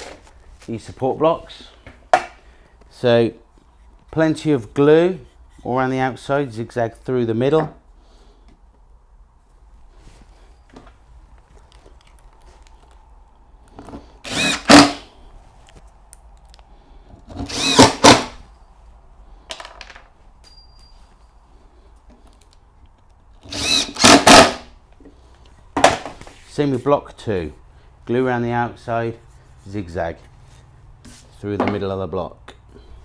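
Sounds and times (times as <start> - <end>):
power drill driving screws: 14.2 - 15.0, 17.4 - 18.4, 23.4 - 24.7.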